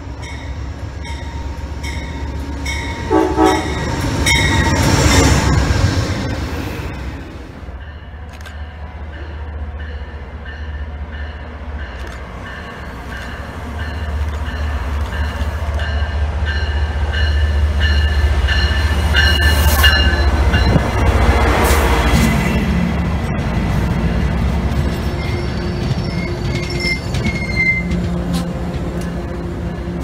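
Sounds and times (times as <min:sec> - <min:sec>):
train engine and wheel rumble: 0:00.0 - 0:30.0
locomotive bell ringing: 0:00.2 - 0:05.5, 0:09.2 - 0:21.0.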